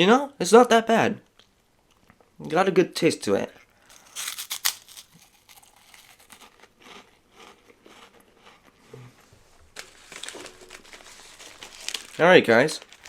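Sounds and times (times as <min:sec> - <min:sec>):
crunchy snack being chewed: 0:03.5 - 0:09.2.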